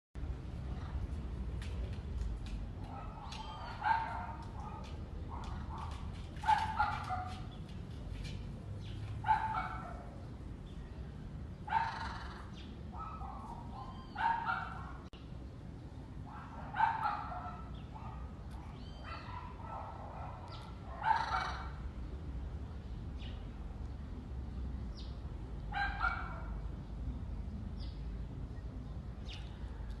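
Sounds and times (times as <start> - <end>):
animal calling: 11.7 - 12.5.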